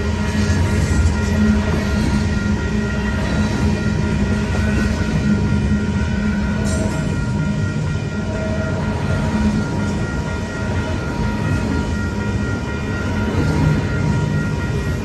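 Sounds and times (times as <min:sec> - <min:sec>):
faint crossing bell ringing: 0:00.0 - 0:15.0
train rumbling on track: 0:00.0 - 0:15.0.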